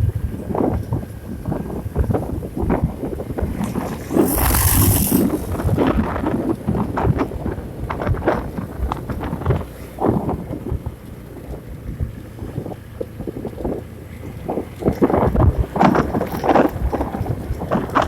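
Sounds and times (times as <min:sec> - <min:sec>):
wind buffeting microphone: 0:00.0 - 0:18.0
short burst of hiss: 0:03.6 - 0:05.8.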